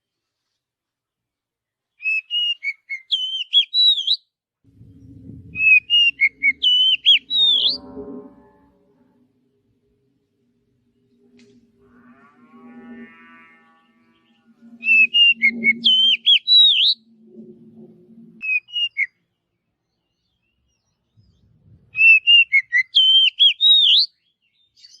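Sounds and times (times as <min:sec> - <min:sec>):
bird singing whistled notes: 0:02.0 - 0:08.1, 0:14.1 - 0:17.1, 0:18.4 - 0:25.0.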